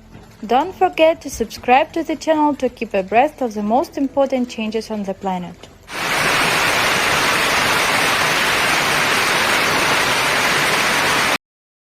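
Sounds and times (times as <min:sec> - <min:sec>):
dense hiss: 0:05.9 - 0:11.4.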